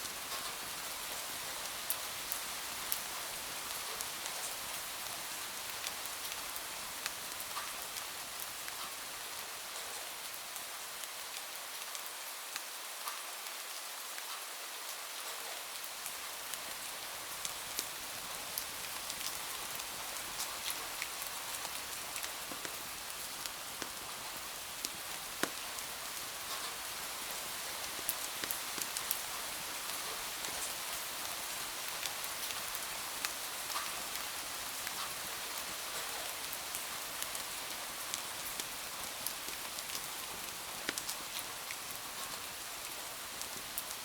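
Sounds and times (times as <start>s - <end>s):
rain hissing: 16.2s - 44.0s
light ticks: 24.8s - 25.6s, 28.1s - 29.2s, 40.8s - 42.3s.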